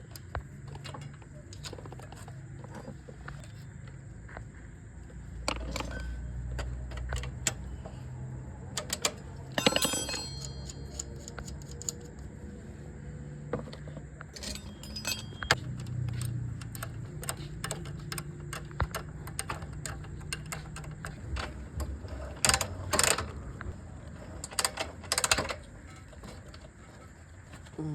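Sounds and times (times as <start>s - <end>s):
low steady hum: 8.8s - 27.9s
ringing metal clatter: 9.5s - 12.0s, 14.4s - 16.8s
metal objects clinking: 9.5s - 12.2s, 14.4s - 18.6s.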